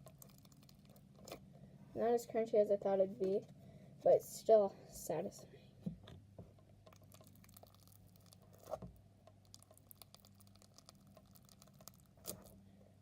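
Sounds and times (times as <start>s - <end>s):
slime squished by hand: 6.8s - 12.6s.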